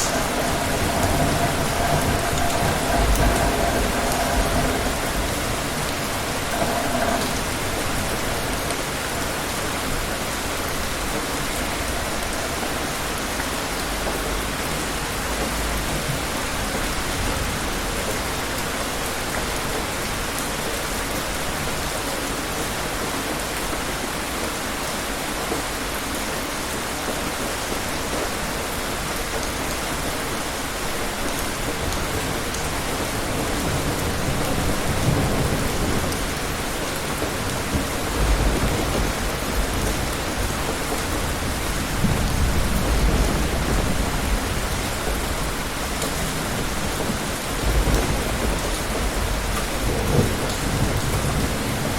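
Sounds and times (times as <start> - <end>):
distant thunder rumble: 0.0 - 13.2, 30.6 - 51.9
steady rain falling: 0.0 - 51.9.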